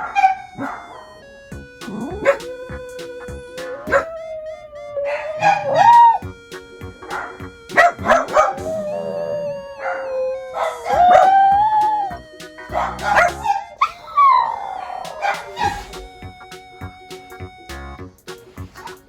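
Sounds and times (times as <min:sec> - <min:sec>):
dog barking: 0:00.0 - 0:00.9, 0:01.9 - 0:02.8, 0:03.6 - 0:04.2, 0:07.2 - 0:09.2, 0:10.6 - 0:11.5, 0:12.7 - 0:15.8
dog howling: 0:01.9 - 0:06.2, 0:07.2 - 0:12.2, 0:12.8 - 0:15.8.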